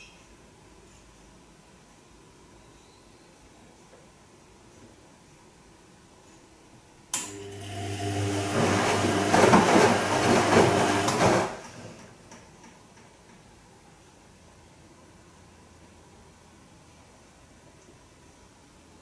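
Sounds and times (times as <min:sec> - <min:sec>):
washing machine motor hum: 0:07.2 - 0:12.4
water and laundry sloshing: 0:07.8 - 0:12.1.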